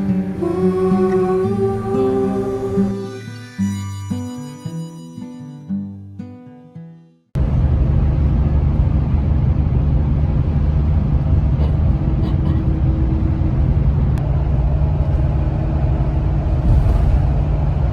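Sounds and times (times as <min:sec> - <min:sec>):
road vehicle rumble: 0:07.4 - 0:17.9.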